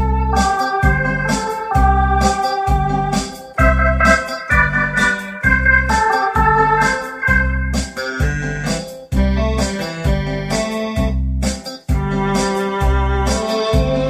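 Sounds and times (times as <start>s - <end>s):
disco rhythm accompaniment: 0.0s - 14.0s
electronic organ melody: 0.0s - 14.0s.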